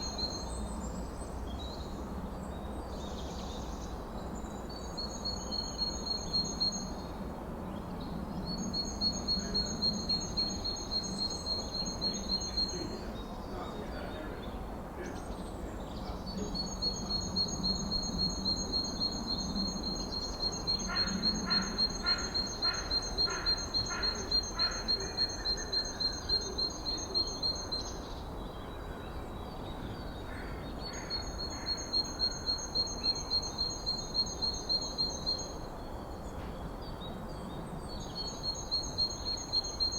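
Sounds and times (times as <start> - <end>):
lower evenly spaced calls: 8.5 - 13.0, 16.6 - 28.1, 30.9 - 35.7, 38.2 - 39.9.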